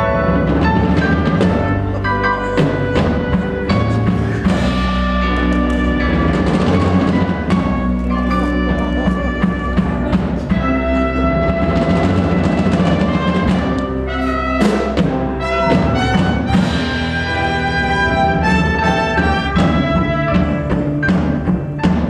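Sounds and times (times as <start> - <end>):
orchestral pit band chords: 0.0 - 22.0
struck percussion accents: 2.6 - 17.4.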